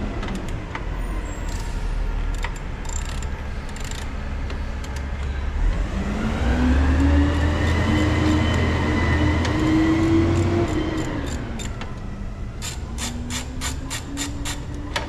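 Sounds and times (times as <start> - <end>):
sharp ratchet clicks: 2.3 - 4.2, 12.6 - 14.8.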